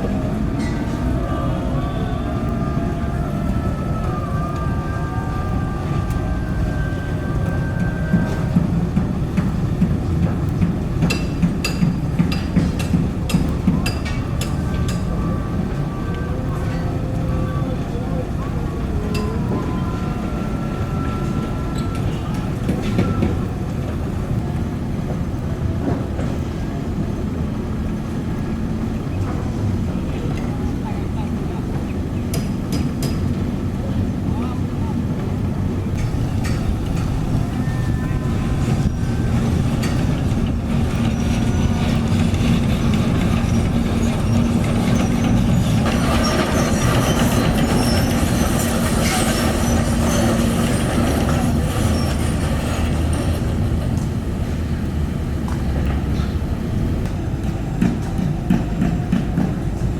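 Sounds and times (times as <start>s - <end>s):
diesel engine rumbling: 0.0s - 59.9s
high metallic squeaks: 36.0s - 53.3s.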